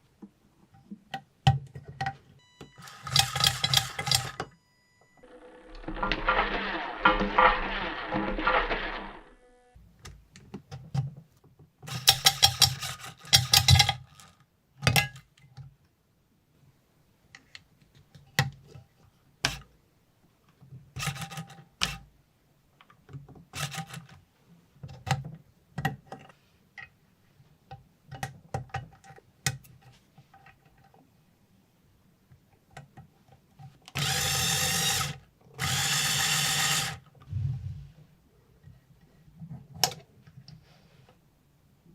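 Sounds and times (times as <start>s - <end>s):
small hard parts clicking and rattling: 2.8s - 4.5s, 11.8s - 15.4s, 23.1s - 24.2s.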